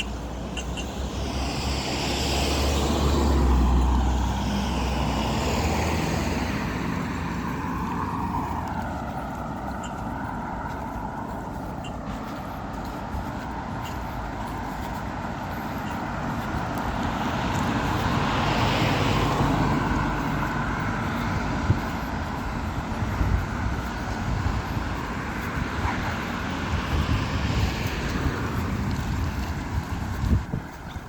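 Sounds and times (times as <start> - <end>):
car passing: 0.0 - 31.0.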